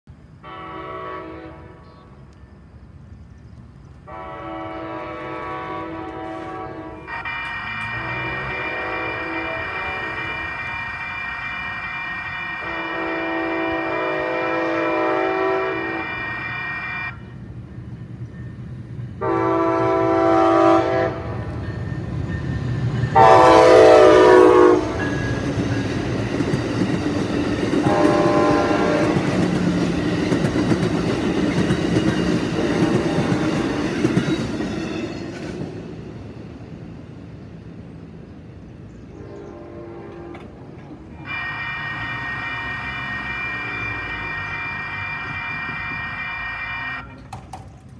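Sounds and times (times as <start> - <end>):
train rumble and wheel clatter: 0.1 - 47.9
train horn blasts: 0.4 - 2.2, 4.0 - 17.5, 19.2 - 21.7, 23.1 - 25.7, 27.6 - 29.9, 32.5 - 33.9, 39.1 - 47.6.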